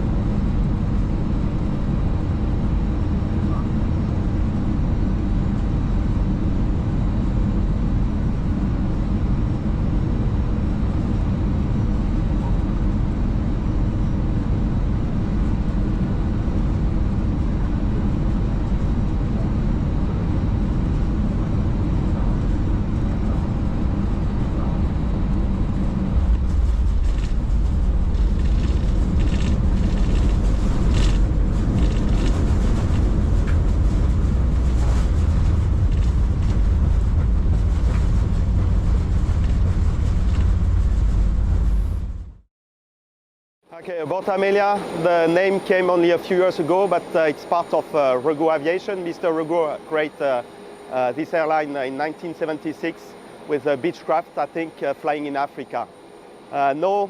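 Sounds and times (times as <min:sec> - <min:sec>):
airliner cockpit rumble: 0:00.0 - 0:42.5, 0:43.7 - 0:57.0
faint steady tones humming: 0:43.7 - 0:57.0.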